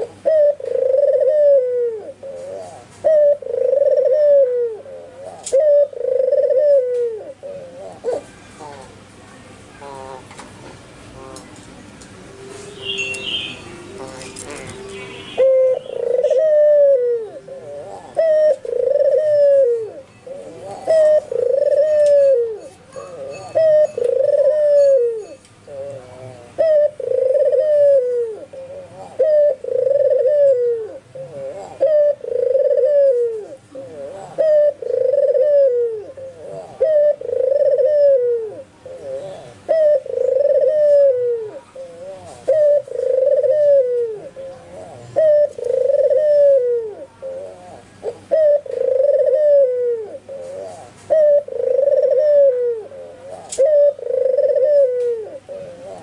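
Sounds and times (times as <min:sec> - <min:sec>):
dove cooing: 0:00.0 - 0:09.0, 0:09.8 - 0:10.4, 0:12.3 - 0:56.0
small birds chirping: 0:12.5 - 0:26.5.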